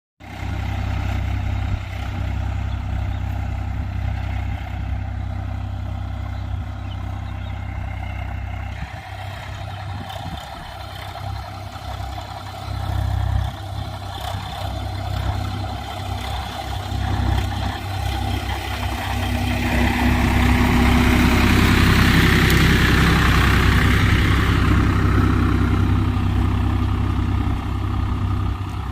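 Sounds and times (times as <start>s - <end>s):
tractor diesel engine running: 0.2s - 28.9s.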